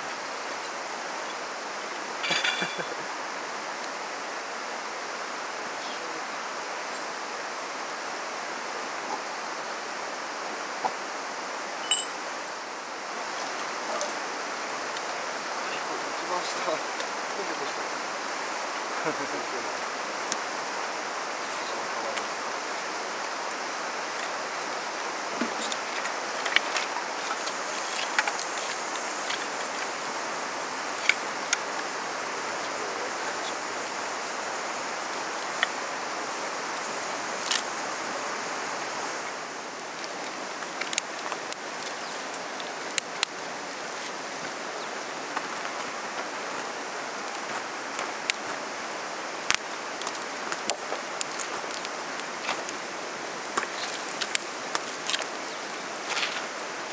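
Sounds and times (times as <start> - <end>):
stream water rushing: 0.0 - 56.9
sharp clicks and crackles: 53.5 - 55.5.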